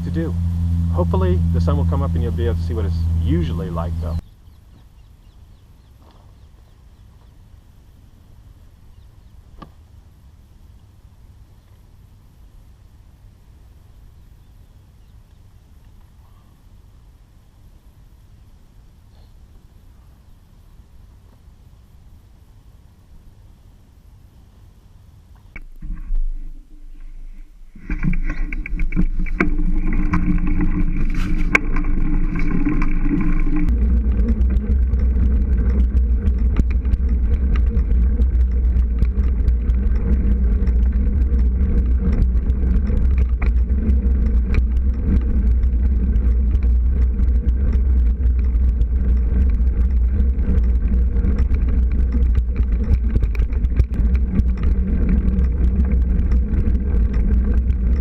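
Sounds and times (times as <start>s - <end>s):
bicycle tyres rumbling on gravel: 0.0s - 4.2s, 25.6s - 58.0s
wind on microphone: 25.5s - 58.0s.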